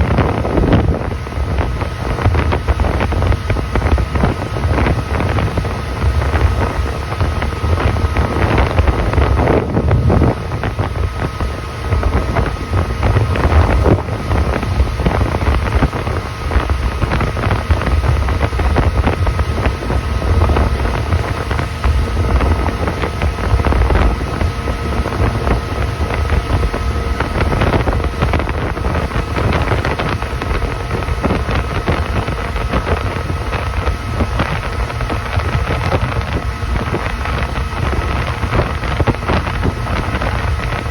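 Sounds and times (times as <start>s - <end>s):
motorboat engine running: 0.0s - 40.9s
wind buffeting microphone: 0.0s - 40.9s.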